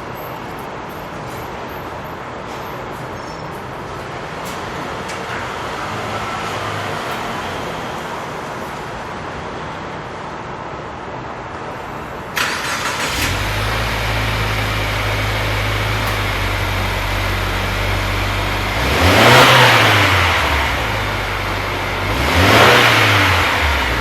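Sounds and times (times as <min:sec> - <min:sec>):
car engine starting and idling: 0:12.3 - 0:24.0
car engine revving: 0:12.4 - 0:24.0.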